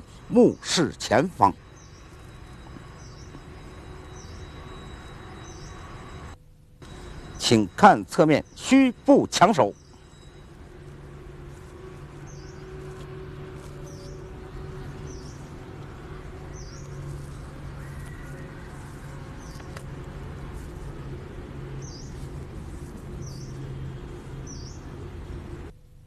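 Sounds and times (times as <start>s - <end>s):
bird chirping: 0.0s - 25.7s
steady low hum: 0.0s - 26.0s.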